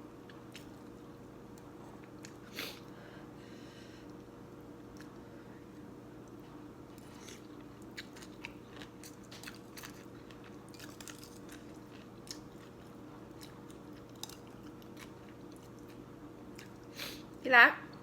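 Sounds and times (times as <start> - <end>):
faint steady hum: 0.0 - 18.0
person chewing noodles: 6.2 - 17.3.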